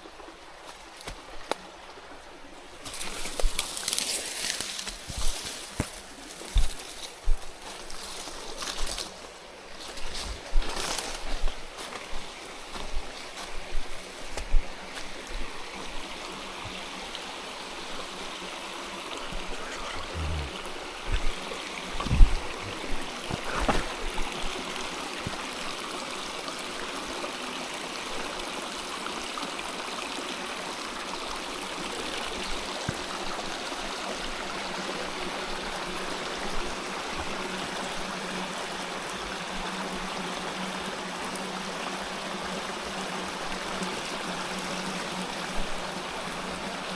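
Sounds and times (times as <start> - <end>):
stream water flowing: 0.0 - 46.9.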